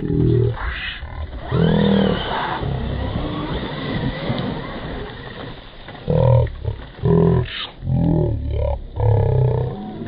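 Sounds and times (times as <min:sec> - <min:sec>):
steady rough noise: 0:00.0 - 0:10.0
electric motor whines: 0:01.2 - 0:05.8.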